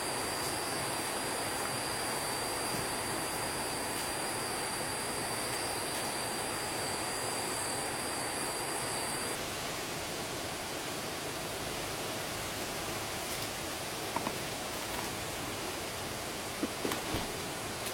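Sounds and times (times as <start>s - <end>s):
thin high whine: 0.0s - 9.4s
stream water rushing: 0.0s - 17.9s.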